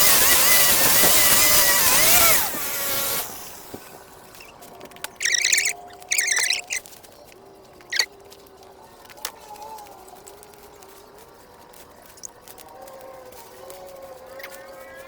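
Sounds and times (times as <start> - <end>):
small garden tool engine: 0.0 - 7.2
short high bird chirps: 5.2 - 6.8, 7.9 - 8.1.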